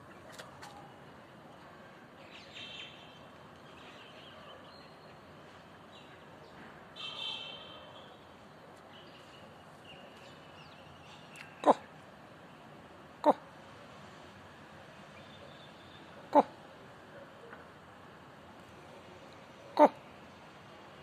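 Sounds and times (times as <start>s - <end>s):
faint bird calls and chirps: 15.1s - 16.6s.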